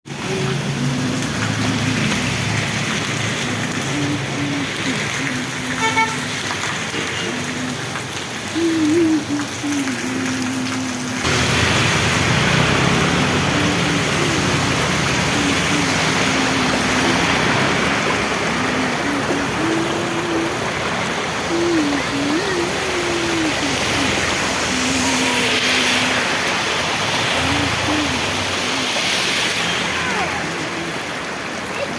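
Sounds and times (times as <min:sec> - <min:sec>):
steady rain falling: 0:00.1 - 0:31.9
street traffic passing: 0:00.1 - 0:31.9
vehicle horn toot: 0:05.8 - 0:06.2.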